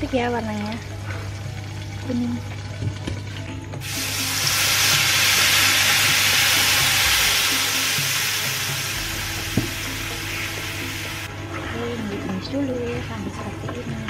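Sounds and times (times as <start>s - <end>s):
spice paste sizzling in hot oil: 3.8s - 11.3s.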